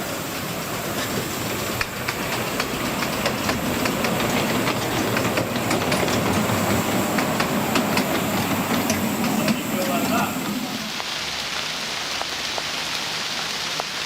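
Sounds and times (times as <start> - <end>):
train running rumble: 0.0 - 11.8
miniature train wheels clicking: 1.5 - 10.2.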